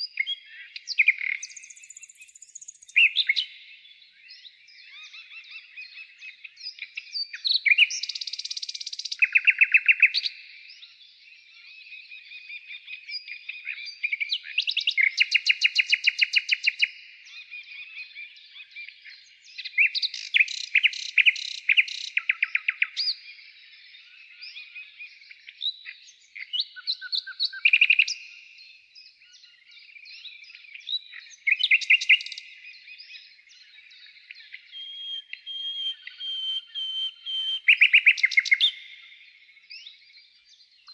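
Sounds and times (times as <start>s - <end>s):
quiet bird twittering: 0.0s - 40.9s
songbirds chirping and trilling: 0.0s - 40.9s.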